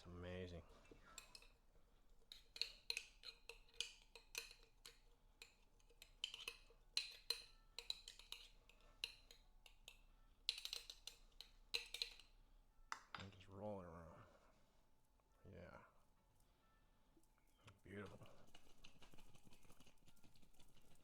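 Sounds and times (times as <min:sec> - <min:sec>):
utensil clinking against bowl: 0:00.7 - 0:13.4.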